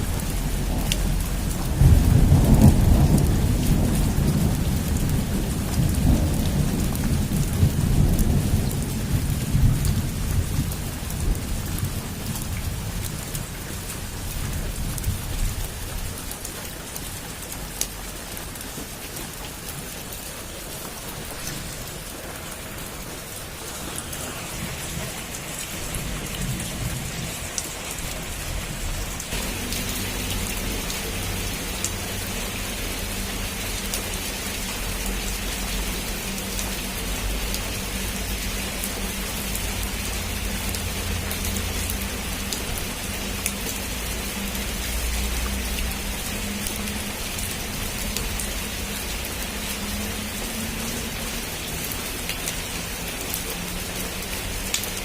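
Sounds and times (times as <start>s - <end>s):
heavy rain on a roof: 0.0s - 55.0s
thunder rumbling: 0.1s - 16.1s, 20.9s - 33.8s.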